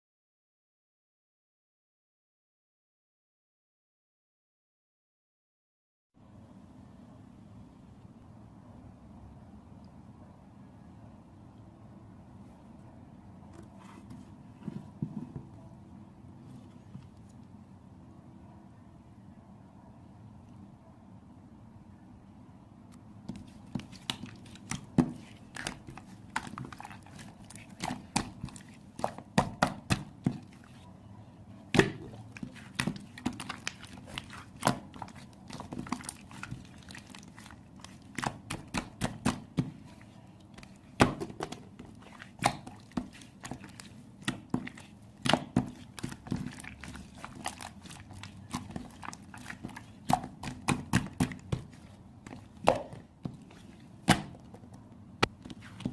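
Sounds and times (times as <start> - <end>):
hands squeezing slime: 23.3 - 30.8, 31.8 - 54.3.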